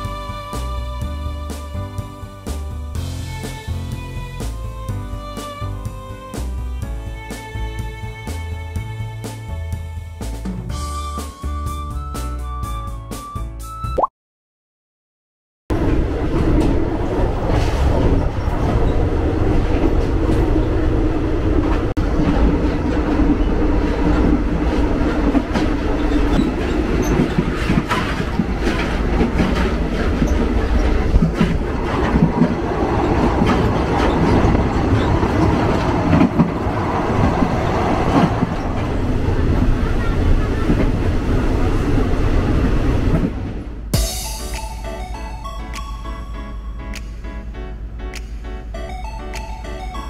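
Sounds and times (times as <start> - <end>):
passenger train rumbling: 0.0 - 13.1, 15.7 - 50.0
wheel clacks over rail joints: 25.2 - 38.8.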